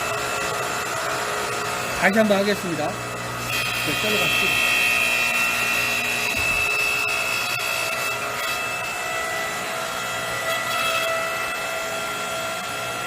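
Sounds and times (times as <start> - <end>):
log splitter pump whine: 0.0 - 13.0.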